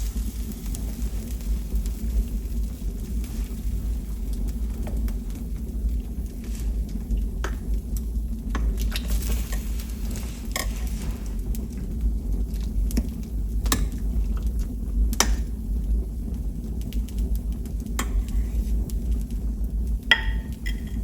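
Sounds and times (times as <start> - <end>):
low rumble: 0.0 - 21.0
utensils clinking against pot: 20.1 - 21.0.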